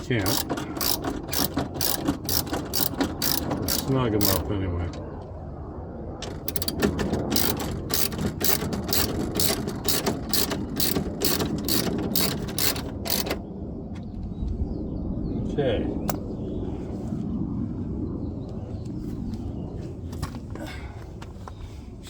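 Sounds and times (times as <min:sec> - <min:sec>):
ratchet wrench clicking: 0:00.0 - 0:04.5, 0:06.2 - 0:13.4.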